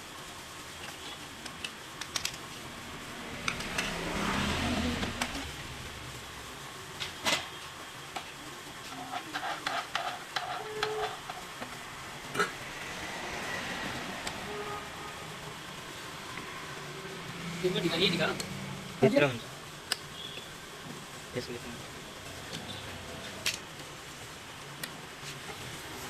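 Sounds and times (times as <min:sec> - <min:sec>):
rushing noise: 0:01.8 - 0:06.8, 0:11.7 - 0:19.6.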